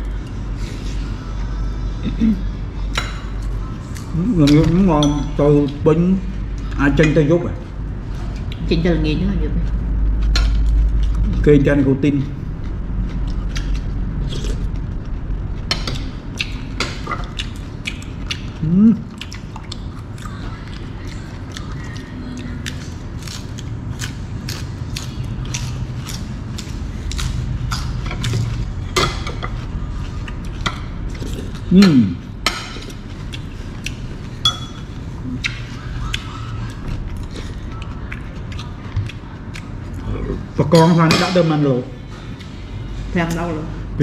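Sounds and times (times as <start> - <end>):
people chewing crunchy vegetables: 12.3 - 40.6.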